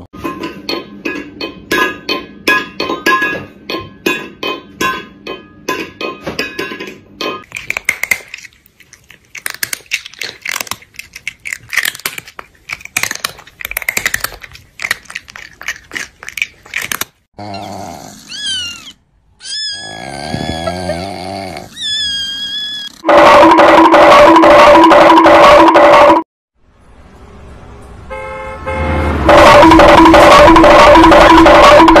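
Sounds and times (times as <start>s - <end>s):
cat meowing and yowling: 17.4s - 21.0s, 21.6s - 23.0s.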